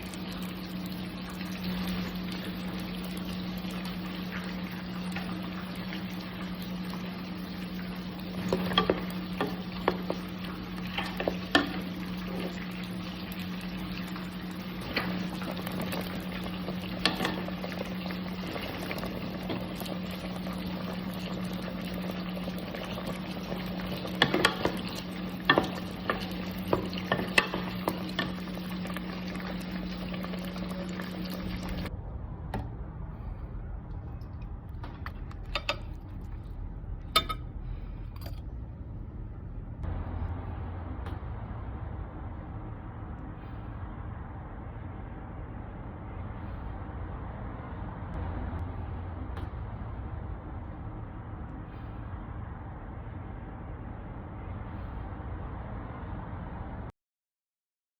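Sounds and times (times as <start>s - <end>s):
food bubbling in a pan: 0.0s - 31.9s
low hum: 0.0s - 56.9s.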